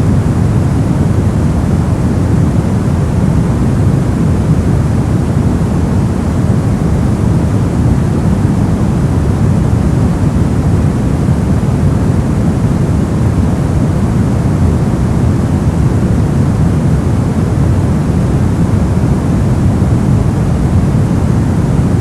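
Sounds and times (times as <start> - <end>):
deep white noise hiss: 0.0 - 22.0.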